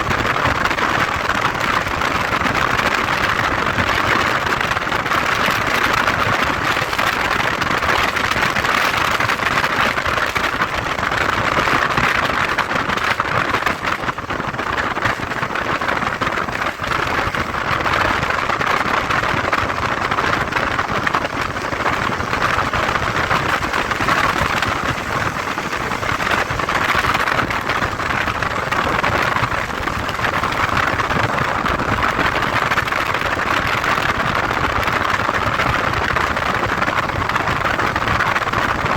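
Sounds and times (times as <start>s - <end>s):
wind and road noise: 0.0s - 38.9s
motorcycle engine: 17.2s - 33.2s.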